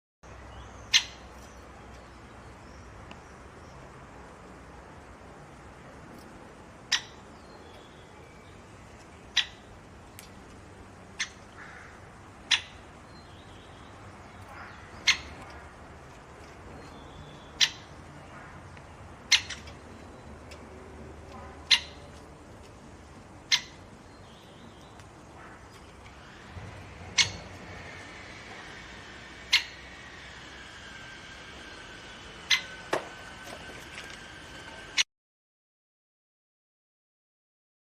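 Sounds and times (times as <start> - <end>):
woodpecker sharp calls: 0.8 - 2.1, 6.8 - 10.3, 11.1 - 22.8, 23.4 - 31.1, 31.8 - 33.4.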